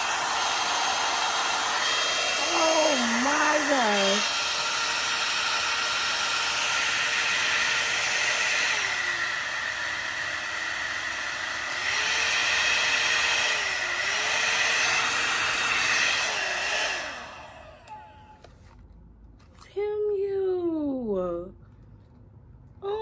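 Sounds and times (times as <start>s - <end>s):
hot air brush blowing: 0.0s - 18.4s.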